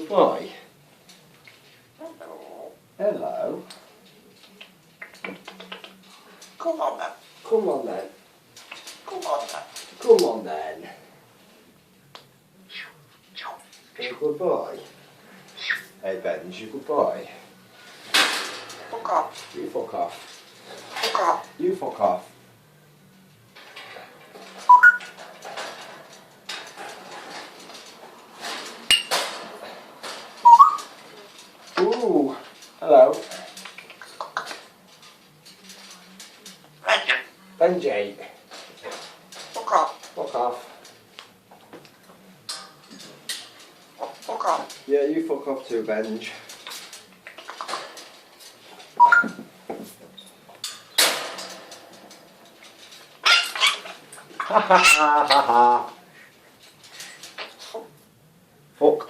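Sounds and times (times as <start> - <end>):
rustling: 0.0 - 59.0
clinks: 23.0 - 37.6, 46.0 - 55.4
parrot whistling: 24.7 - 25.1, 30.4 - 30.8, 49.0 - 49.4
parrot harsh squawk: 36.8 - 37.3, 53.2 - 53.9, 54.5 - 55.5.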